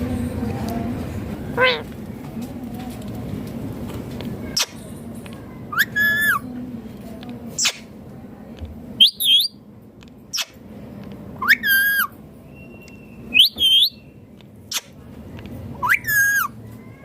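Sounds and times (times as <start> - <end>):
parakeet calling: 1.5 - 1.9.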